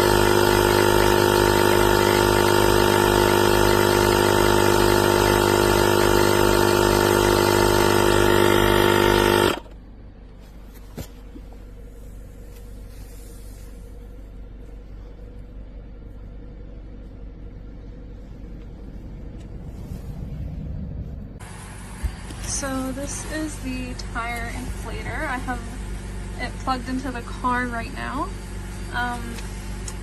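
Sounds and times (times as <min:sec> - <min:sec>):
air compressor humming and pulsing: 0:00.0 - 0:30.0.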